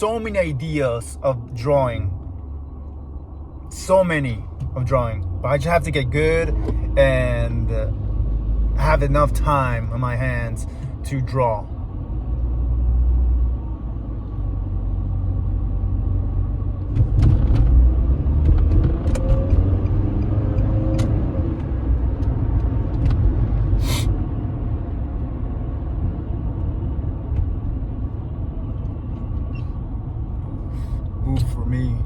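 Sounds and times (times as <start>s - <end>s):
car road rumble: 0.0s - 32.0s
brief hiss: 23.8s - 24.1s.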